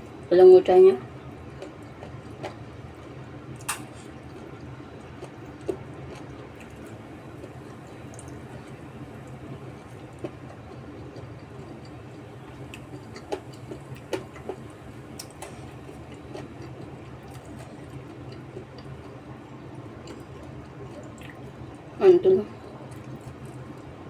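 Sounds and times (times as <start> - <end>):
steady low hum: 0.0 - 24.0
person chewing food: 1.3 - 21.5
small clicks and smacks: 3.6 - 4.1.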